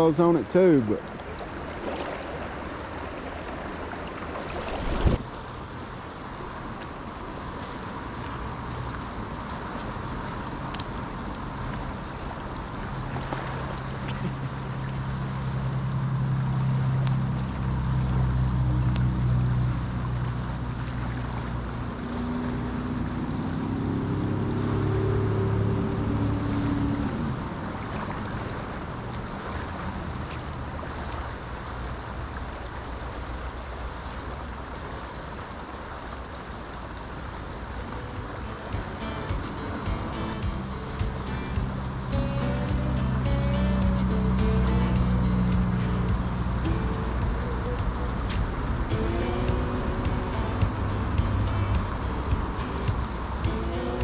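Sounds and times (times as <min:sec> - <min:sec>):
river water rushing: 0:00.0 - 0:54.0
wind on microphone: 0:04.5 - 0:05.2
low steady drone: 0:37.6 - 0:54.0.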